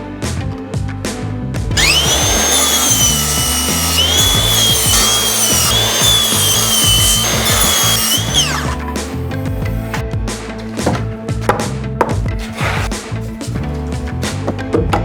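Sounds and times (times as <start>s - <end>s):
background music: 0.0s - 15.0s
electric power saw whining: 1.8s - 10.0s.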